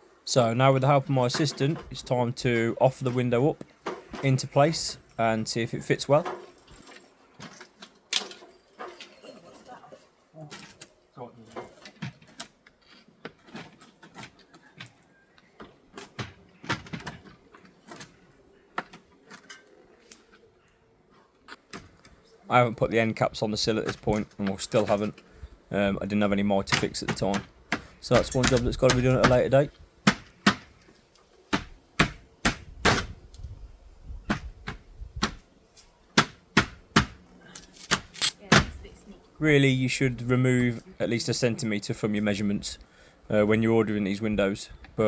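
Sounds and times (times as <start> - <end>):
sharp knocks: 36.2 - 37.2.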